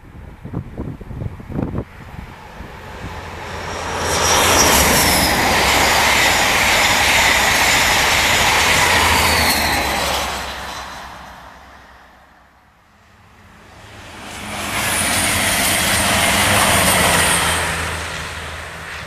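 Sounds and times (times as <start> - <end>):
train wheels rumbling on rail: 0.2 - 12.4, 13.0 - 19.0
high whine dropping in pitch: 2.7 - 9.1.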